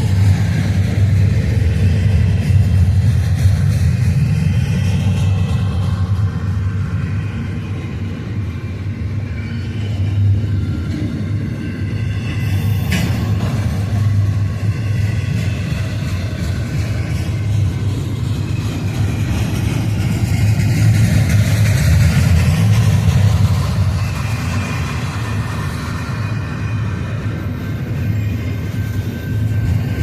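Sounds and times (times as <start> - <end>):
train wheels rumbling on rails: 0.0 - 30.0
faint high squeal: 9.0 - 19.0, 23.4 - 30.0.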